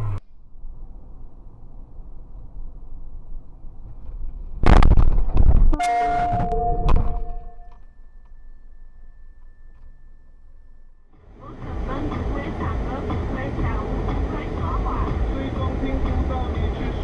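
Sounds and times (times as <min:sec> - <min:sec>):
road rumble: 0:00.0 - 0:17.0
car crash: 0:03.8 - 0:10.8
held pitched tone: 0:05.8 - 0:11.9.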